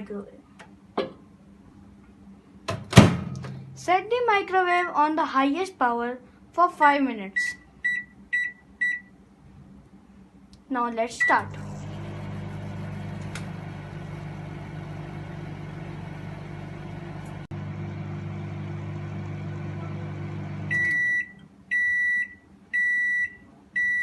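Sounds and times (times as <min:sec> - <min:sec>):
microwave long beeps: 0:07.4 - 0:09.1, 0:11.2 - 0:24.0
microwave oven humming: 0:11.2 - 0:22.2.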